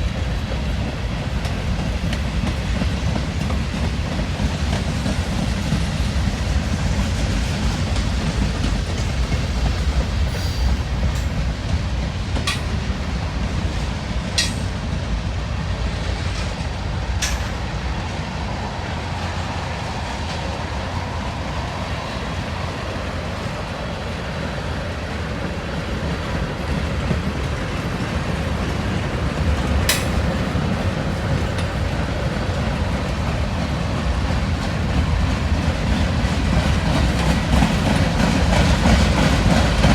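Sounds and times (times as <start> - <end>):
railroad wheels rumbling on rail: 0.0 - 39.9
sharp metallic clanks: 12.4 - 13.2, 13.8 - 15.0, 16.3 - 17.7, 29.9 - 30.4.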